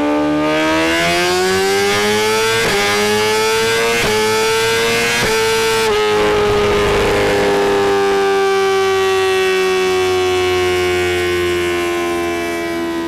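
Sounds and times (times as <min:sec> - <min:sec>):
motorcycle engine revving: 0:00.2 - 0:09.4.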